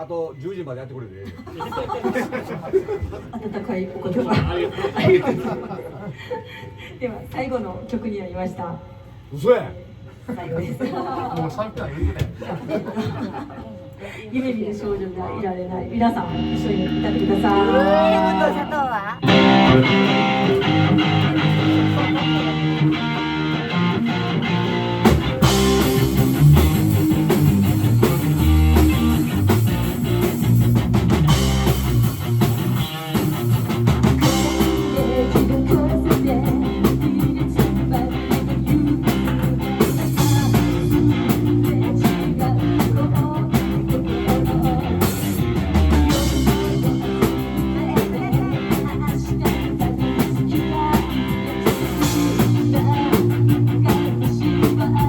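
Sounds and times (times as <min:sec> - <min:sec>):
live band playing pop rock: 0:16.2 - 0:55.0.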